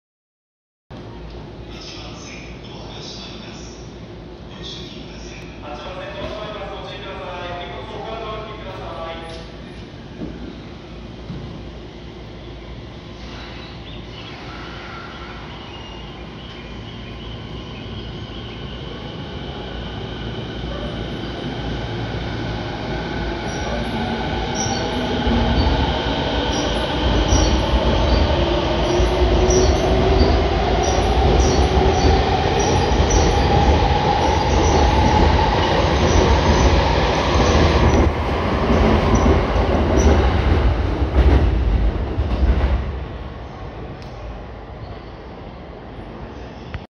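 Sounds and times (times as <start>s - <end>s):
wheels rumbling on rail: 15.8s - 44.4s.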